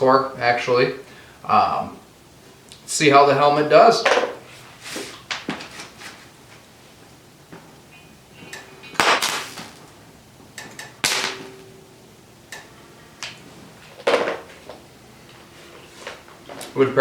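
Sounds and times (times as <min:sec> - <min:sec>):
welder arc bursts: 0:08.5 - 0:10.0, 0:10.6 - 0:11.7.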